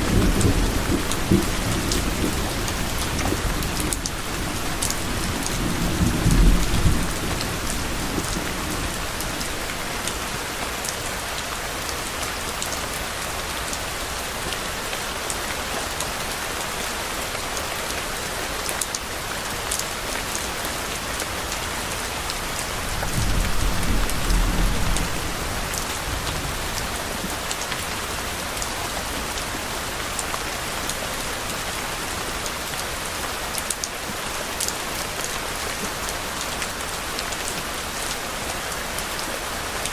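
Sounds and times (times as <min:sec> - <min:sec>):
distant thunder rumbling: 0:00.0 - 0:10.1, 0:22.7 - 0:27.3
steady rain: 0:00.0 - 0:39.9.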